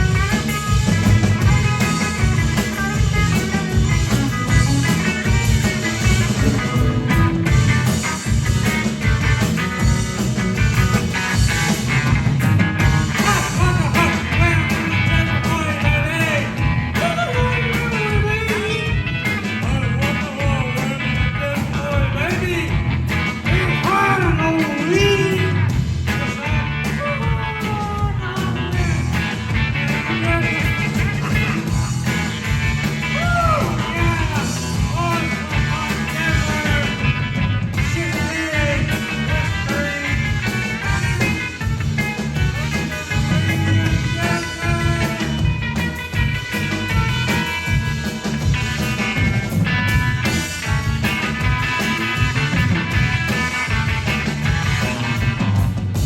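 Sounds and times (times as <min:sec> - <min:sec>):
rock band playing live: 0:00.0 - 0:56.0
person singing: 0:13.2 - 0:19.0, 0:19.6 - 0:22.7, 0:23.5 - 0:29.2, 0:33.1 - 0:37.2, 0:37.8 - 0:41.6, 0:42.4 - 0:45.4.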